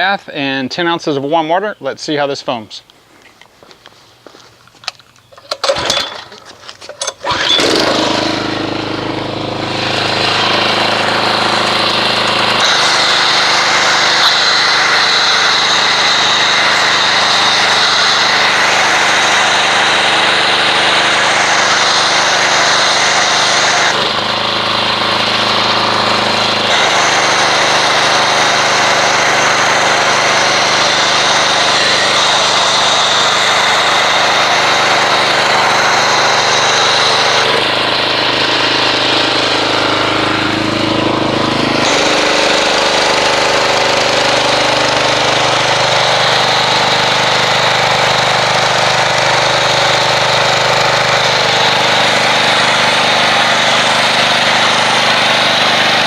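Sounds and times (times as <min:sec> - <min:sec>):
pressure washer running: 0:04.8 - 0:56.0.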